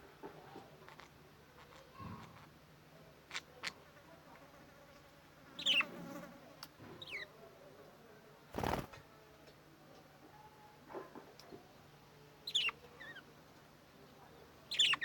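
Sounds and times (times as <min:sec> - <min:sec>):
budgerigar chirps: 0:05.6 - 0:05.9, 0:12.5 - 0:13.2, 0:14.7 - 0:15.0.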